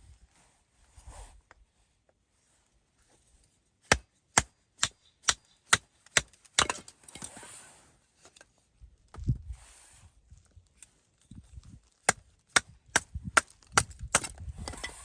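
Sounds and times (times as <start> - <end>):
scraping rustling noise: 0.0 - 3.7, 7.0 - 11.9.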